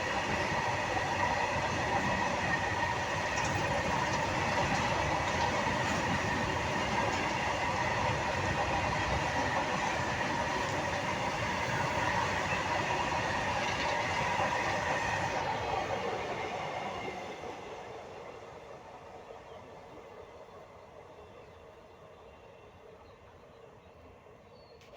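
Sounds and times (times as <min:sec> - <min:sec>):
freight train wagons rolling: 0:01.6 - 0:10.0.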